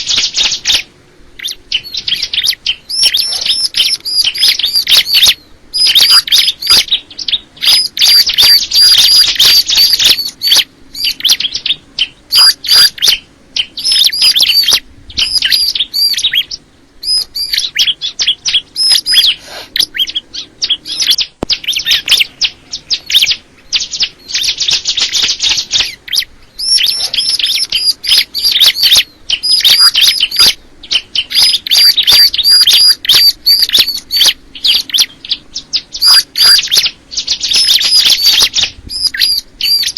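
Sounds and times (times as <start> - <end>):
bird singing high repeated notes: 0.0 - 39.9.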